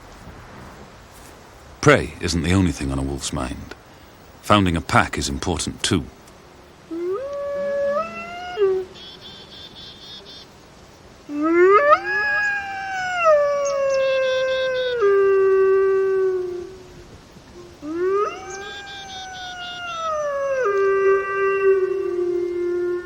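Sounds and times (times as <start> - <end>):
wolves howling: 6.9 - 10.0, 11.3 - 17.0, 17.6 - 23.0
faint rapid high chirping: 8.9 - 11.1.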